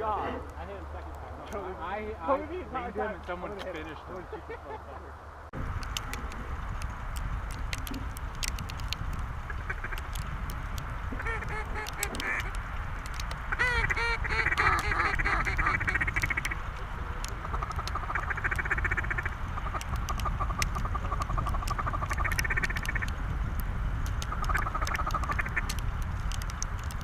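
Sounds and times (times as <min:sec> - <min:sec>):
wind rumble on microphone: 0:00.0 - 0:27.0
mallard quacking: 0:11.2 - 0:12.5, 0:13.5 - 0:16.6.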